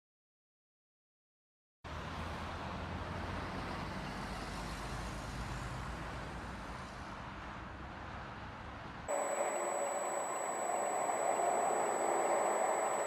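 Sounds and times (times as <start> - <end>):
vehicle and road noise: 1.9 - 9.1.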